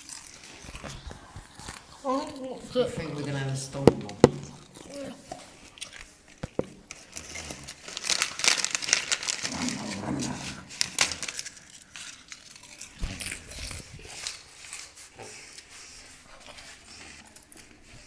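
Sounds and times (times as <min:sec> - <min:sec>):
rustling and crackling: 0:00.0 - 0:18.0.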